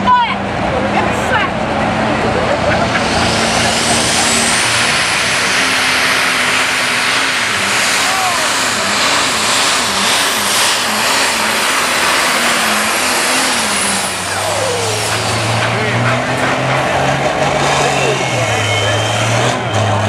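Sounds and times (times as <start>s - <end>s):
tractor engine at full throttle: 0.0s - 20.0s
high turbo whistle: 2.7s - 15.6s.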